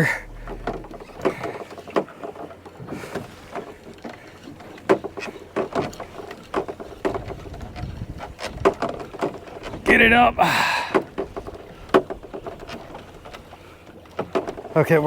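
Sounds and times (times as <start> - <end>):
faint low hum: 0.0 - 1.7
knocks and clunks on boat: 0.0 - 15.0.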